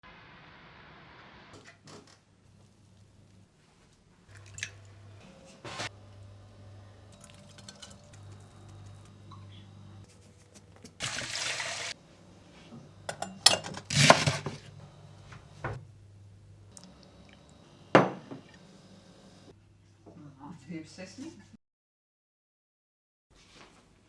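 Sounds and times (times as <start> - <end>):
low steady hum: 4.3 - 20.6
dishes and cutlery clinking: 7.2 - 8.4, 13.1 - 14.5
running water: 11.0 - 12.0.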